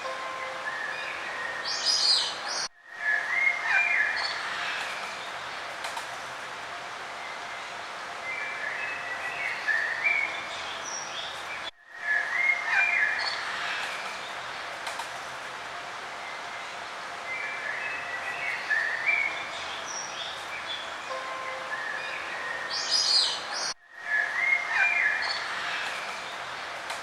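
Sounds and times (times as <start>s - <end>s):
steady background hiss: 0.0s - 27.0s.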